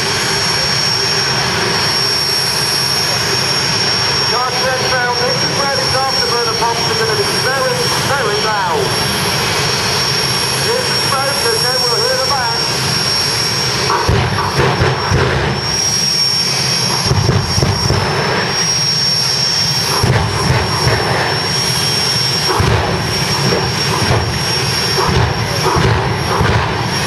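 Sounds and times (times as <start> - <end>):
turbine engine roaring with whine: 0.0 - 27.0
afterburner bangs: 4.4 - 27.0.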